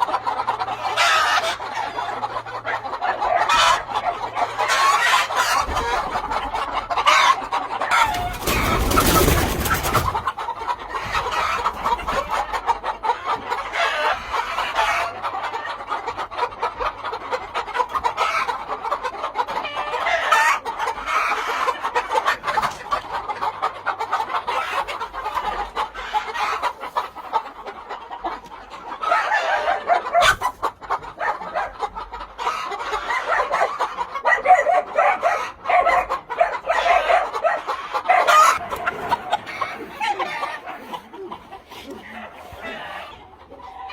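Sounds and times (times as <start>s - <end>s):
roosters crowing: 0.0s - 15.4s, 19.4s - 22.4s, 29.0s - 31.6s, 32.4s - 43.9s
hens clucking: 0.0s - 43.9s.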